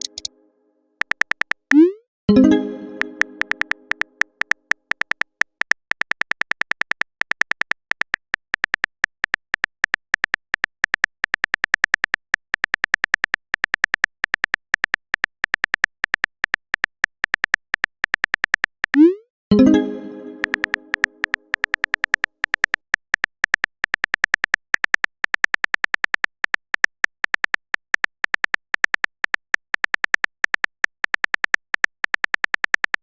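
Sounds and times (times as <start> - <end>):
phone keyboard typing clicks: 0.0 - 0.3, 1.0 - 33.0
chime message tone: 1.8 - 4.0, 19.0 - 21.4.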